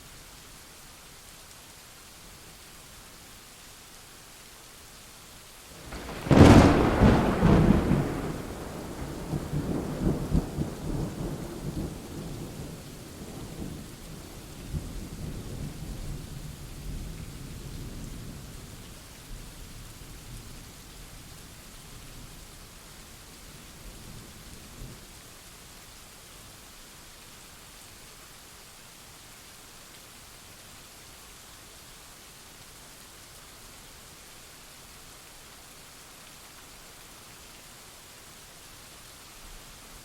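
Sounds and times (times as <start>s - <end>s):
steady rain: 0.0s - 40.0s
thunderclap: 5.8s - 11.8s.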